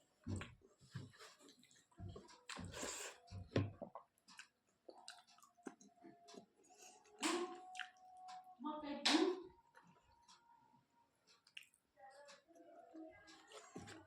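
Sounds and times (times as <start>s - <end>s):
person chewing food: 0.0s - 8.4s, 11.2s - 14.0s.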